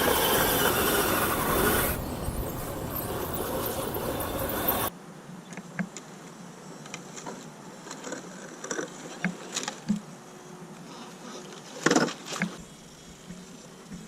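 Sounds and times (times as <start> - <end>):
toy car motor whirring: 0.0 - 4.9.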